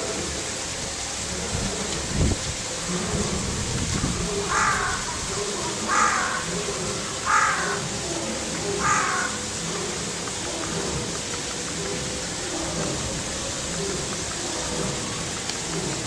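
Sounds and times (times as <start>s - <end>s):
steady background noise: 0.0s - 16.0s
bird harsh calls: 4.2s - 8.1s, 8.7s - 10.0s.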